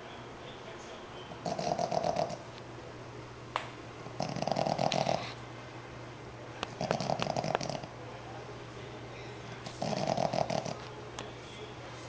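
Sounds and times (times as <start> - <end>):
puppy snoring: 1.4 - 2.5, 4.2 - 5.4, 6.7 - 7.9, 9.7 - 10.8.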